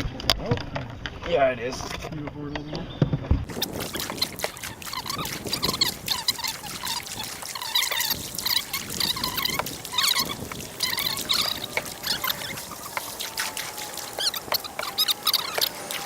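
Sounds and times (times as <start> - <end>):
river water gurgling and splashing: 3.5 - 16.0.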